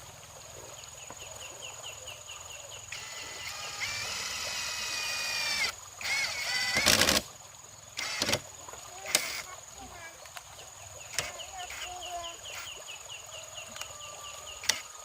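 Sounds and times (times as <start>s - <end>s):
insects chirping faintly: 0.0s - 15.0s
rooster crowing: 13.3s - 15.0s.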